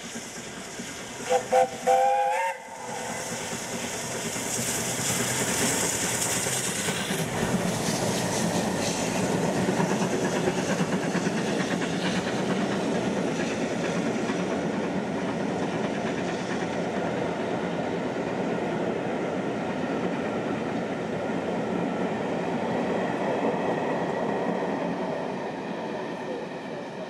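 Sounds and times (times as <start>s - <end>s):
train wheels clattering: 0.0s - 18.5s.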